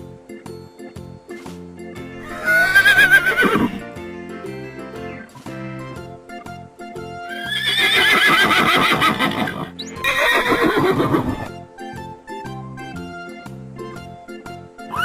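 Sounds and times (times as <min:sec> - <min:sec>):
background music with steady notes: 0:00.0 - 0:15.0
horse whinnying: 0:02.2 - 0:03.8, 0:07.3 - 0:11.5.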